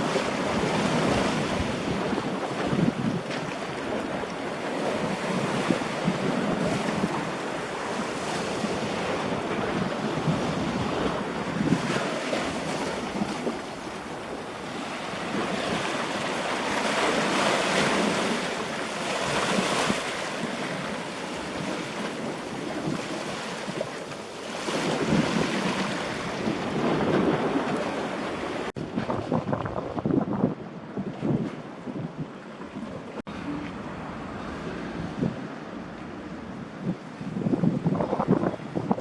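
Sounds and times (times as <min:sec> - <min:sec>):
surf: 0:00.0 - 0:39.0
wind buffeting microphone: 0:00.0 - 0:39.0.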